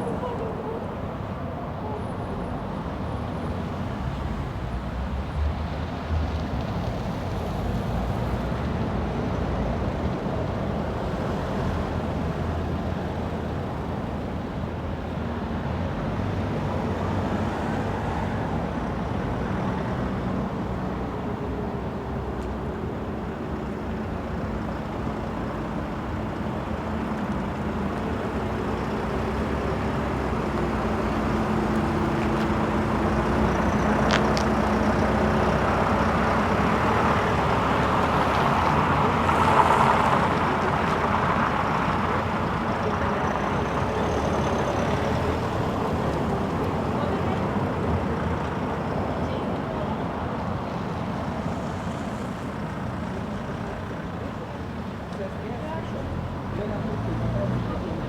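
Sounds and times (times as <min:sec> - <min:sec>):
passing cars: 0:00.0 - 0:58.0
engine hum: 0:18.4 - 0:58.0.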